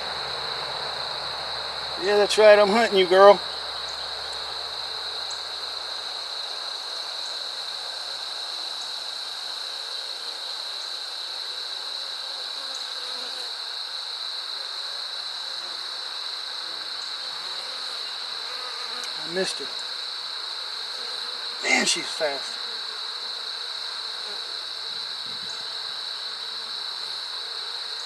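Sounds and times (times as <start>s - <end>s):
honey bees buzzing: 0.0s - 5.8s, 17.3s - 24.8s.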